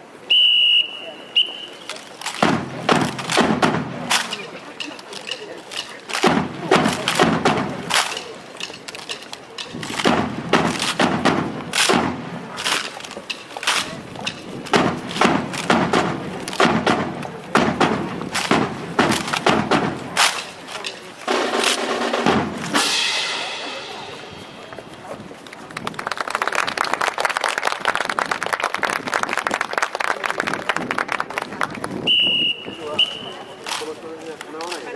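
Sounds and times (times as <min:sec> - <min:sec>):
hands slapping rifles: 0:01.9 - 0:21.8
rifle butts striking ground: 0:01.9 - 0:22.8
boots stamping: 0:02.2 - 0:04.5, 0:05.8 - 0:22.8.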